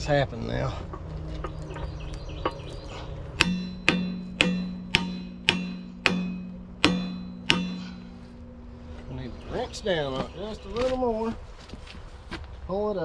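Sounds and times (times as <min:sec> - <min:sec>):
hammer ringing on steel: 0:01.4 - 0:08.6.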